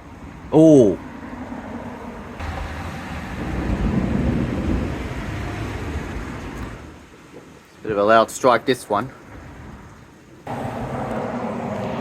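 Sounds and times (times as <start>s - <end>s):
thunder rumbling: 1.4s - 7.1s.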